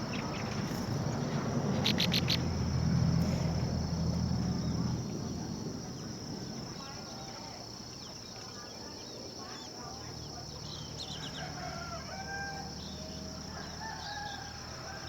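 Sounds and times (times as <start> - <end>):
rooster crowing: 11.1 - 15.0.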